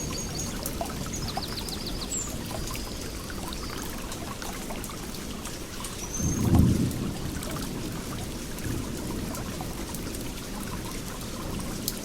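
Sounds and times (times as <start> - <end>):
small birds chirping: 0.0 - 3.8
running water: 0.0 - 12.0.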